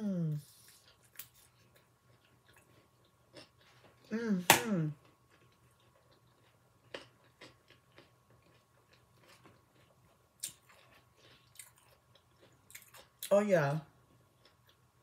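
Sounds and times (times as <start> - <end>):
faint chewing: 0.3 - 4.1, 4.9 - 13.3, 14.0 - 15.0.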